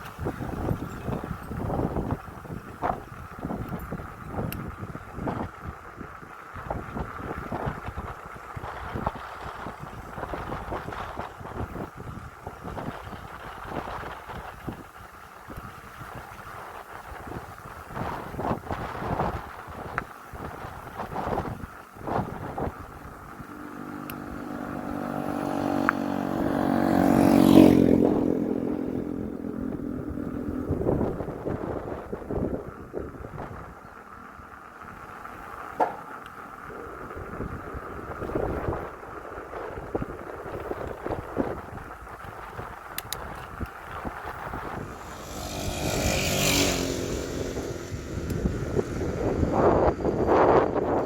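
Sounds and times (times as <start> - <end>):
bike clicking and rattling: 0.0 - 26.0, 29.3 - 51.0
wind on microphone: 0.0 - 33.9, 35.8 - 51.0
vehicle engine passing by: 23.3 - 31.4, 44.4 - 50.7.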